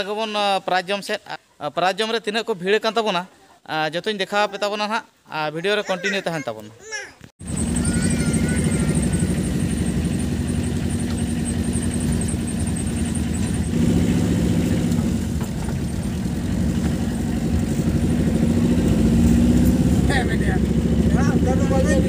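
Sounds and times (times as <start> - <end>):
car engine running inside cabin: 7.4 - 22.0.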